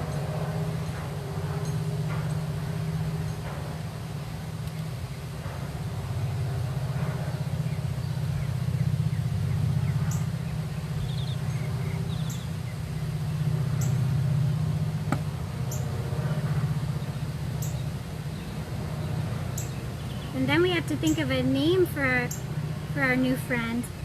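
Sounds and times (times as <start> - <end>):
low engine hum: 0.0 - 24.0
bird chirps: 7.7 - 12.8, 17.0 - 20.4, 22.2 - 22.5.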